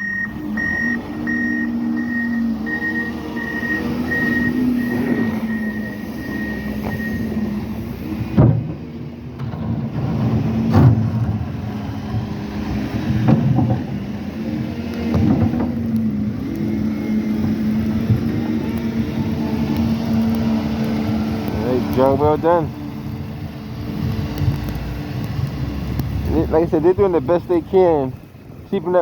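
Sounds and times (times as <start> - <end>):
backup alarm beeping: 0.0 - 7.8
diesel engine running: 0.0 - 29.0.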